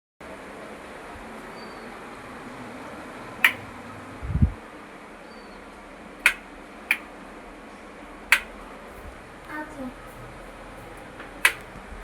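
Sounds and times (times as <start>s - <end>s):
sharp clicks or taps: 3.4s - 3.6s, 6.2s - 7.0s, 8.3s - 8.5s, 11.4s - 11.7s.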